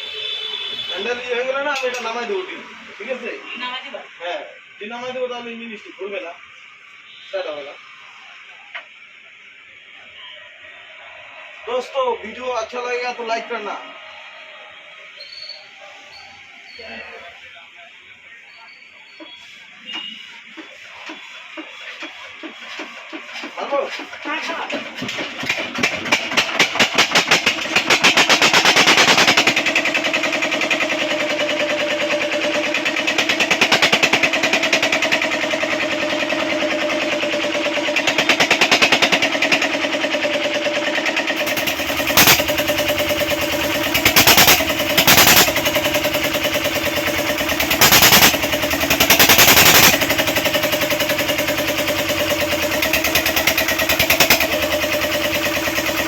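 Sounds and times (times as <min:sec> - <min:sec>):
diesel engine running: 0:25.4 - 0:56.0
loud bursts of noise: 0:25.4 - 0:56.0.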